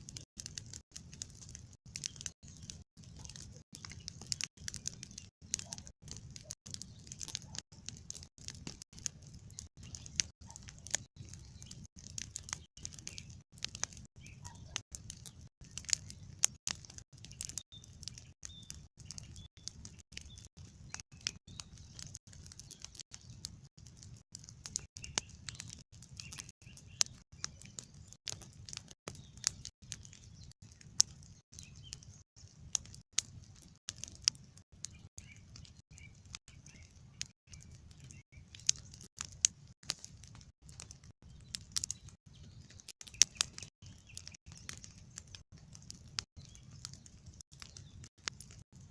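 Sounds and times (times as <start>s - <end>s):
campfire crackling and popping: 0.0s - 48.9s
faint bird chirps: 1.9s - 8.0s, 9.1s - 16.4s, 17.2s - 23.6s, 25.0s - 32.6s, 34.4s - 39.1s, 40.8s - 45.1s.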